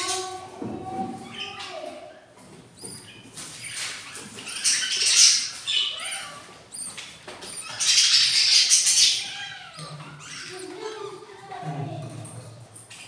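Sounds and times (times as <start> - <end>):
chicks squeaky begging calls: 2.8 - 11.2.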